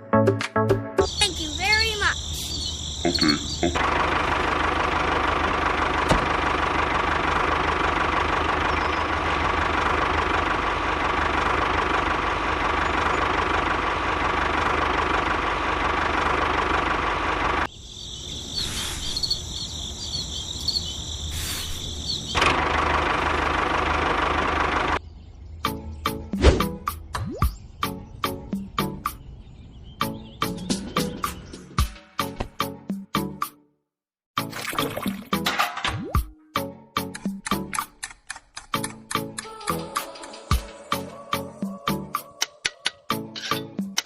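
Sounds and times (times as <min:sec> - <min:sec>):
high chirping: 0:01.0 - 0:03.8, 0:17.7 - 0:22.4.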